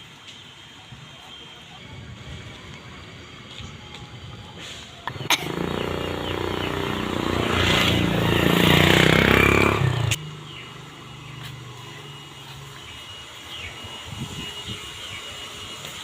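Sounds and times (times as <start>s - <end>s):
vehicle engine running: 0.6s - 16.0s.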